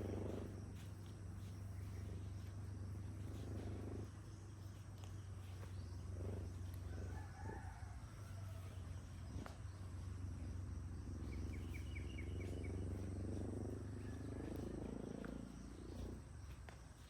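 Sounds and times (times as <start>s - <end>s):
steady low hum: 0.0s - 17.0s
distant rooster crowing: 6.2s - 10.4s, 11.4s - 16.2s.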